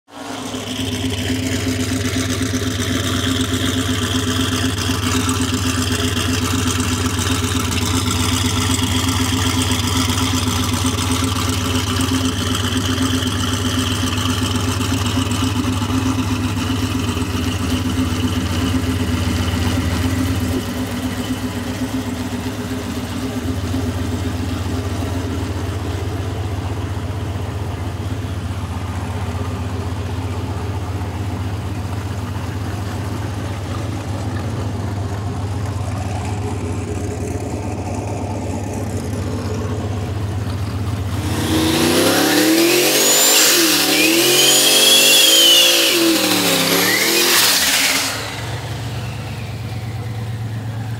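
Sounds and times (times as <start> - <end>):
car engine revving: 0.1 - 50.9
turbo whine: 36.0 - 50.9.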